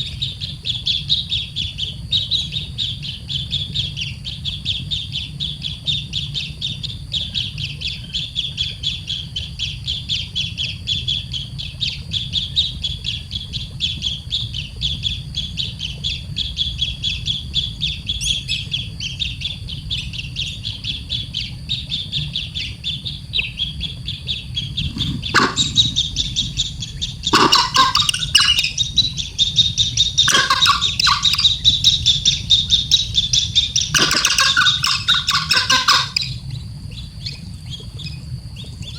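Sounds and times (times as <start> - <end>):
baby bird chirping: 24.8 - 36.3.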